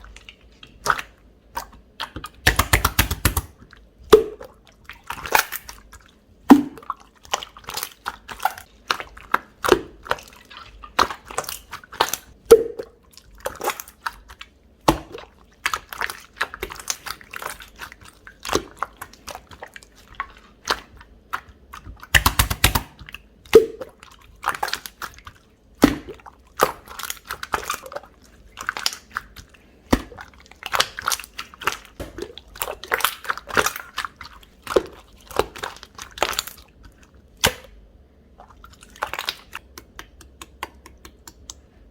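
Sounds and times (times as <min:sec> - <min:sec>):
slime popping: 0:00.8 - 0:05.8, 0:22.0 - 0:23.9
sticky slime clicks and crackles: 0:02.4 - 0:03.5, 0:22.1 - 0:23.0.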